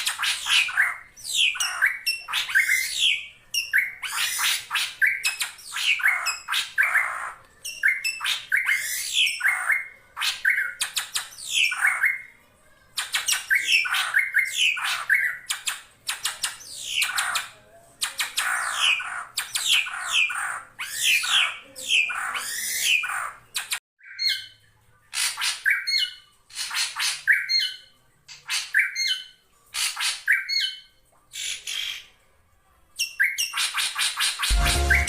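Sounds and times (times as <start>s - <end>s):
drongo calling: 34.5s - 35.0s.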